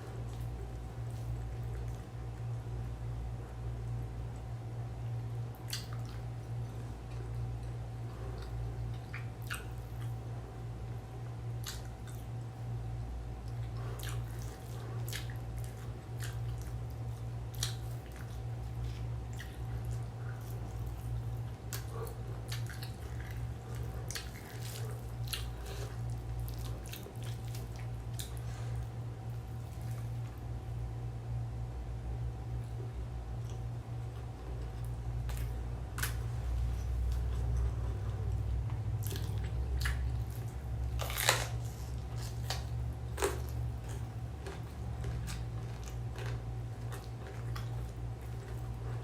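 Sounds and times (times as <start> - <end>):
steady low hum: 0.0 - 49.0
wet chewing: 5.5 - 10.2, 11.6 - 12.5, 13.4 - 30.5, 33.4 - 49.0.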